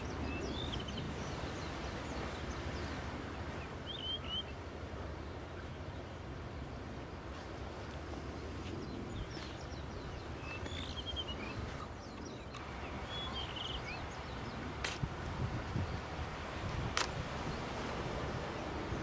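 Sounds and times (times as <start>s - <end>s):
wind: 0.0s - 19.0s
bird chirping: 8.8s - 14.6s.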